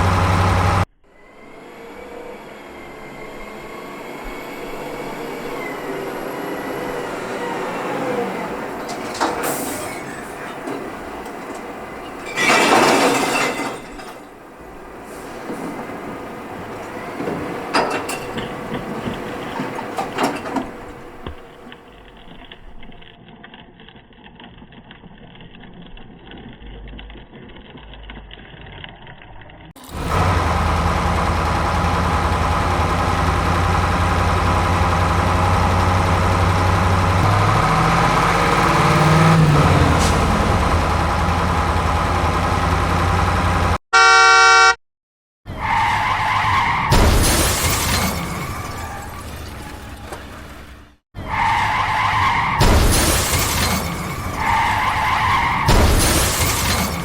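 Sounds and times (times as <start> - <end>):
engine drone: 0.0 - 12.4, 14.6 - 44.8
vehicle horn blast: 43.9 - 44.8.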